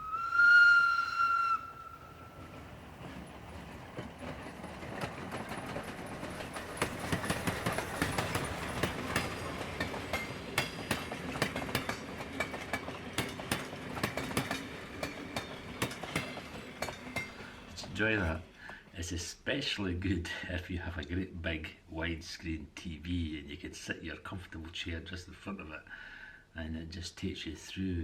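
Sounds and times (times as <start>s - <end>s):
train wheels clattering on rails: 2.2s - 18.9s.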